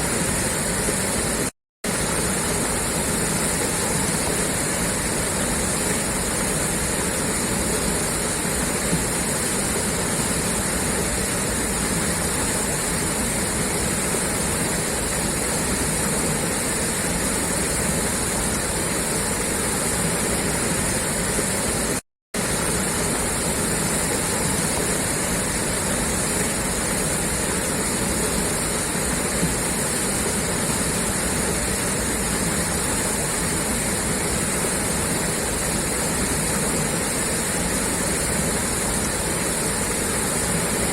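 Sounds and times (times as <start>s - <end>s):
water gushing from pipe: 0.0s - 40.9s.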